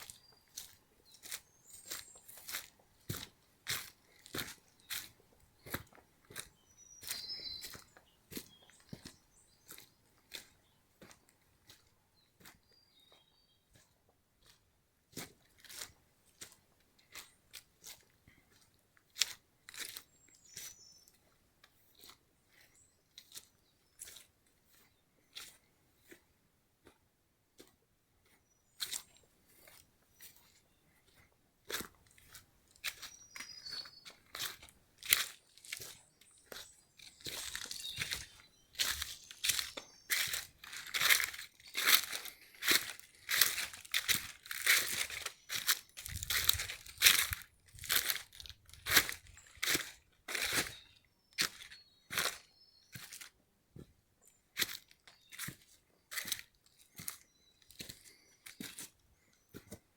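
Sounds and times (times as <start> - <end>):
footsteps crunching through dry leaves: 0.0 - 9.9, 31.7 - 53.3, 54.6 - 58.9.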